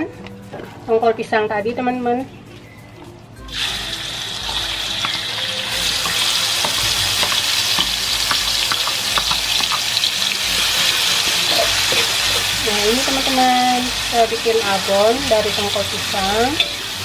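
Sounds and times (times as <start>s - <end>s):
oil sizzling in a wok: 3.4s - 17.0s
metal spatula scraping a pan: 3.6s - 13.5s.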